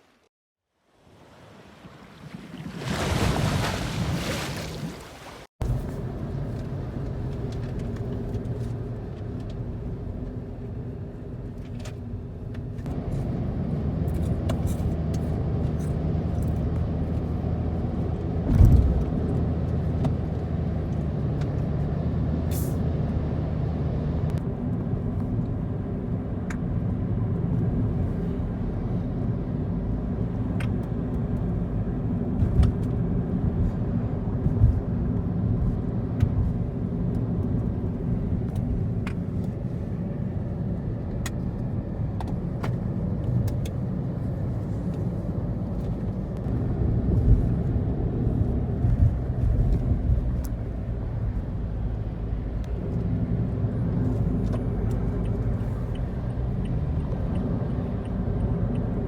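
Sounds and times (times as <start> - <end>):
road noise: 1.0 - 59.0
vehicle engine hum: 5.6 - 59.0.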